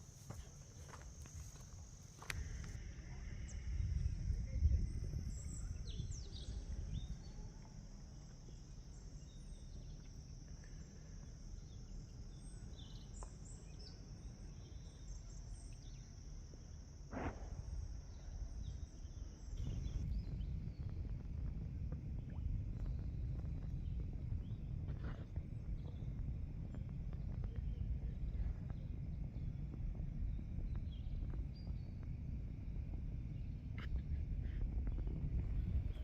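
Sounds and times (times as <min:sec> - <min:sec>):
high insect drone: 0:00.0 - 0:36.0
low rumble: 0:02.2 - 0:09.0, 0:17.1 - 0:36.0.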